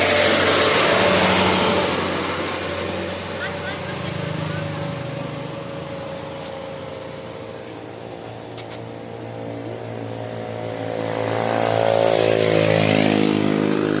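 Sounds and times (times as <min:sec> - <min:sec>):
diesel truck engine labouring: 0:00.0 - 0:10.6.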